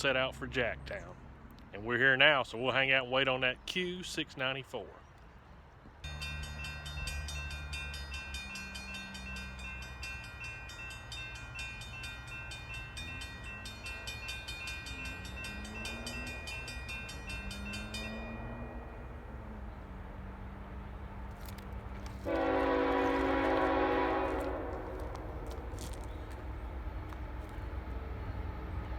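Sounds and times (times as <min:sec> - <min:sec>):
railroad crossing bell ringing: 0:06.0 - 0:21.0, 0:22.0 - 0:27.7
diesel freight train rumble: 0:06.1 - 0:28.9.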